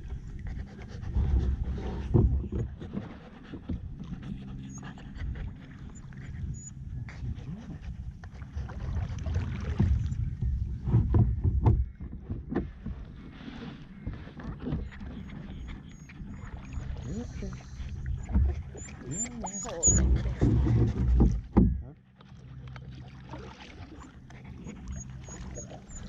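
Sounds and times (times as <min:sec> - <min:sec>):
paddle strokes in water: 0:00.0 - 0:26.0
low rumble: 0:03.7 - 0:12.0
water splashes: 0:07.3 - 0:10.6, 0:13.0 - 0:26.0
paddle knocking against hull: 0:08.7 - 0:17.2, 0:17.9 - 0:25.8.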